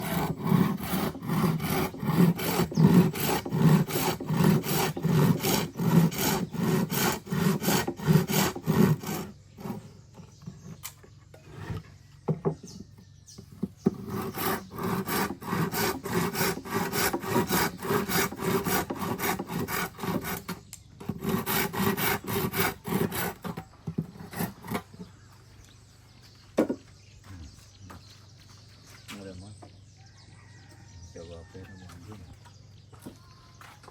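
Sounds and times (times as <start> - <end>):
hand saw cutting wood: 0.0 - 11.8, 13.6 - 25.1.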